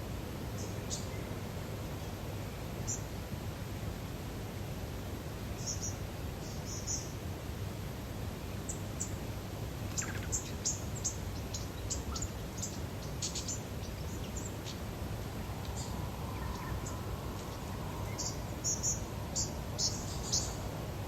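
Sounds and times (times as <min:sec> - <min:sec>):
small birds chirping: 0:09.9 - 0:14.9, 0:15.5 - 0:20.8.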